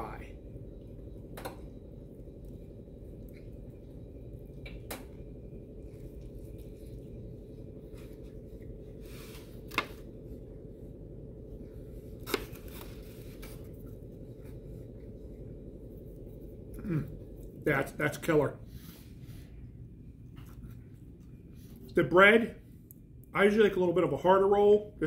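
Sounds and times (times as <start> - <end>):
low room hum: 0.0 - 25.0
man chewing: 5.8 - 9.9.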